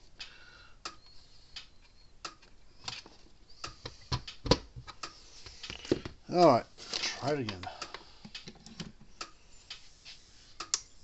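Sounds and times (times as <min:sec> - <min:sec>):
hands clicking on metal parts: 0:10.6 - 0:10.9.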